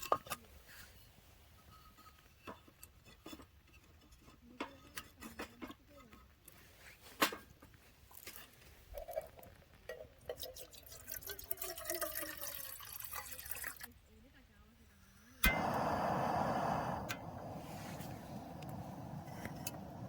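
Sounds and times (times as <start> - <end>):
liquid pouring into container: 10.4 - 13.9.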